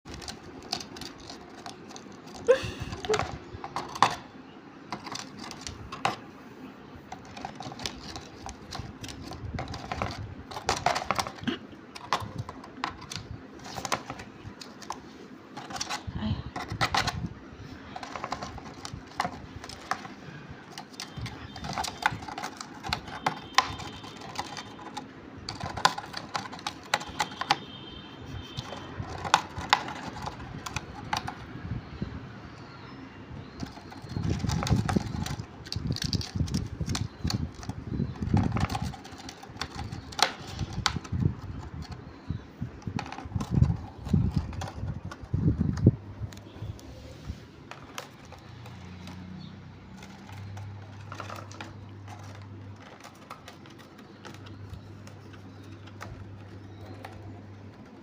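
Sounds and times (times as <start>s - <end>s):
bird beak tearing cardboard: 0.0s - 4.2s, 17.8s - 31.5s, 33.5s - 42.1s.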